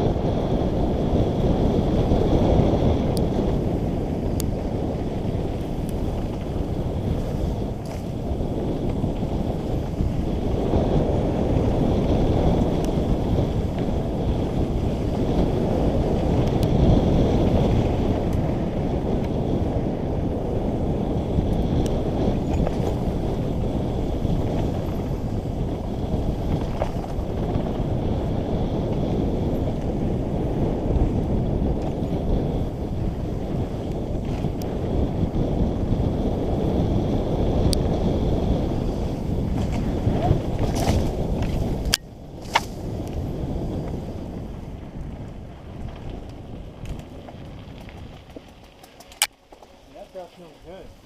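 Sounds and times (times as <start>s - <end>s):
wind buffeting microphone: 0.0s - 51.0s
sharp clicks from bike: 2.6s - 16.9s, 17.5s - 19.4s, 21.4s - 27.9s, 33.0s - 35.0s, 38.9s - 50.8s.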